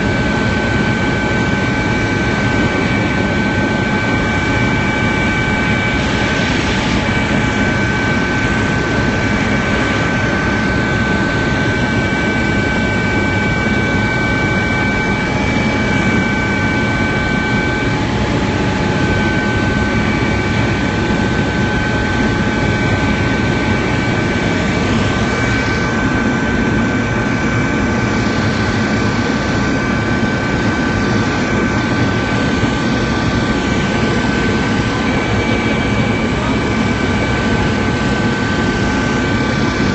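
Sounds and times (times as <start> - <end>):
helicopter turbine and rotor drone: 0.0 - 39.9.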